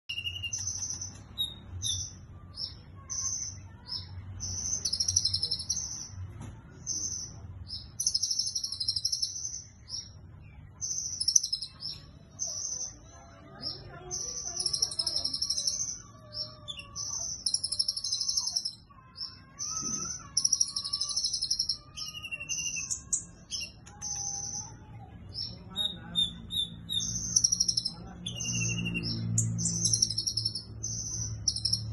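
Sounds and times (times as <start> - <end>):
bird singing high buzzy trills: 0.0 - 6.2, 13.6 - 31.9.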